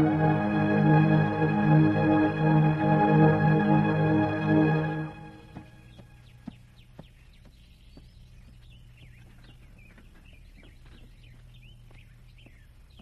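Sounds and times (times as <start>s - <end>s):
low steady hum: 0.0s - 13.0s
faint birds chirping: 4.8s - 13.0s.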